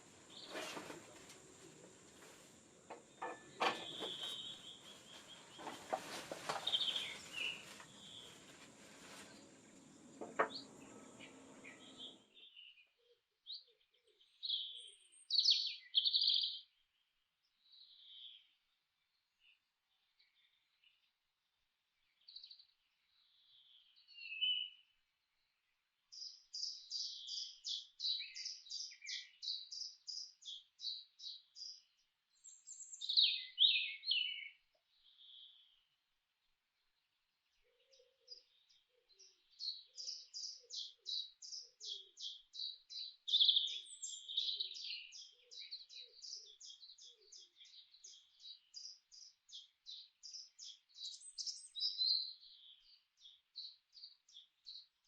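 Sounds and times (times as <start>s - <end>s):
birds chirping rapidly: 0.0s - 12.7s.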